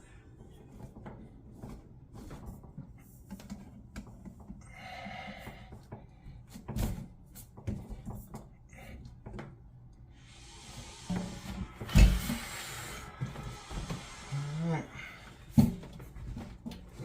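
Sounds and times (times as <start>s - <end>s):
steady hiss: 10.1s - 15.6s.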